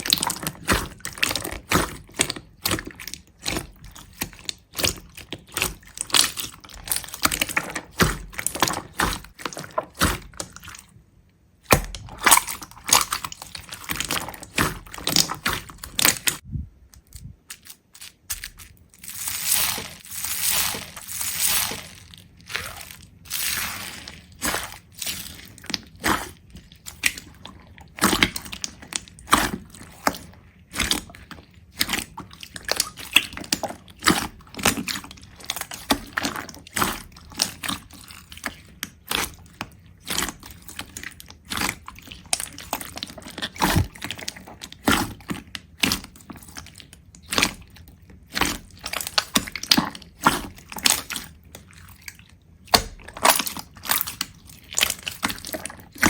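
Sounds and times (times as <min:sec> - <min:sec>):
sharp crunches and cracks: 0:11.6 - 0:38.1, 0:38.9 - 0:52.0, 0:52.7 - 0:56.0.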